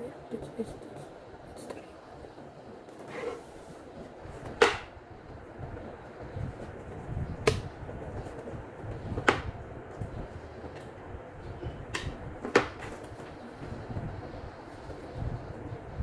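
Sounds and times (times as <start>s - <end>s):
low rumble of things being moved: 0.0s - 16.0s.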